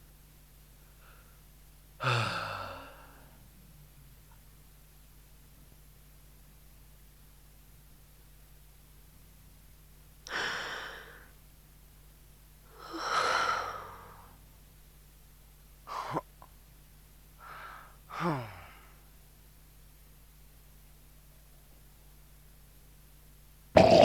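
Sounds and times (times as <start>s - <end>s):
tape hiss: 0.0s - 23.8s
person groaning: 2.0s - 3.1s, 18.1s - 18.8s
person gasping and sighing: 2.0s - 3.3s, 17.4s - 18.9s.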